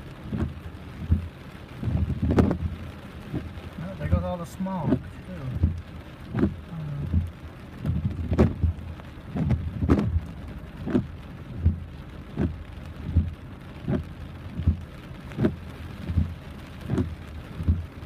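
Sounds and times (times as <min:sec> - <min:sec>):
heavy rain falling: 0:00.0 - 0:18.0
regular thud: 0:05.6 - 0:11.8, 0:16.9 - 0:17.9.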